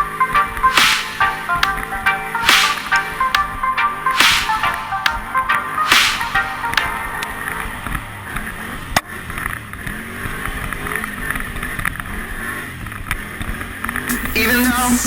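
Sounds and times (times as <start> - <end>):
sharp click: 0.7 - 1.8, 2.4 - 3.5, 4.2 - 5.2, 5.9 - 6.9.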